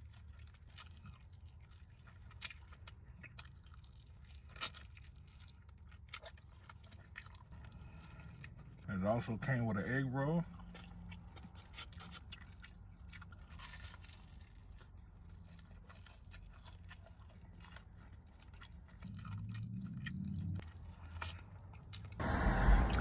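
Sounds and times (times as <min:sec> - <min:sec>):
person crunching crispy food: 0:00.0 - 0:09.3, 0:10.0 - 0:22.8
low hum: 0:22.1 - 0:23.0.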